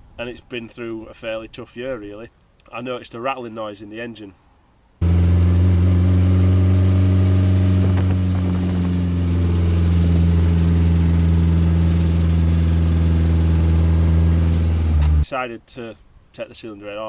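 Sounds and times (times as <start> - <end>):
car engine idling with rattle: 5.0 - 15.2.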